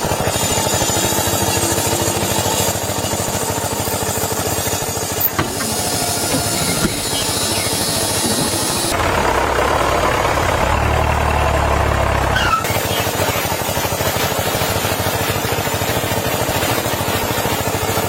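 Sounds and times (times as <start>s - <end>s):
small electric motor humming: 0.0s - 9.0s
rough rattling saw buzz: 0.0s - 18.0s.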